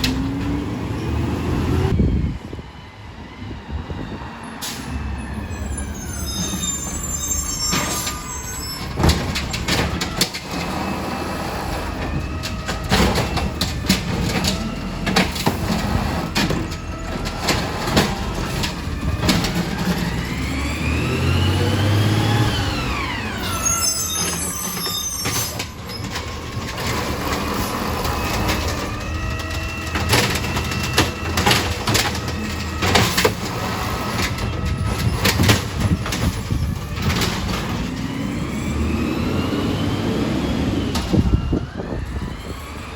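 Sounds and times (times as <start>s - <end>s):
garbage truck diesel engine: 0.0s - 42.9s
clanks and knocks: 8.8s - 20.4s, 25.2s - 38.2s.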